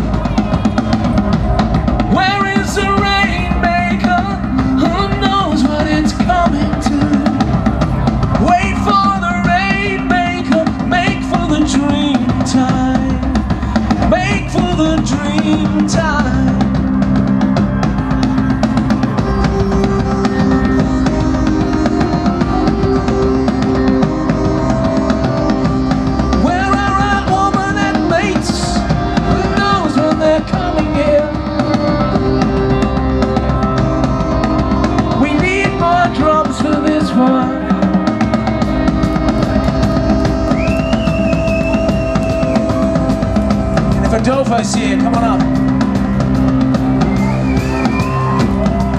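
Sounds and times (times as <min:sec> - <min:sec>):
heavy pounding drums: 0:00.0 - 0:48.9
bagpipes playing: 0:16.7 - 0:48.9.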